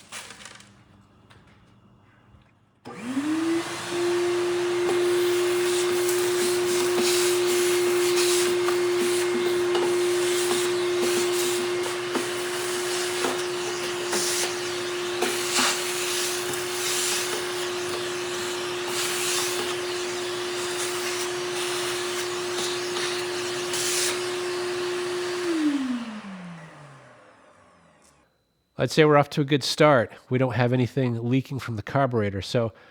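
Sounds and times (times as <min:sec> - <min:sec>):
electric motor humming: 0:02.9 - 0:27.9.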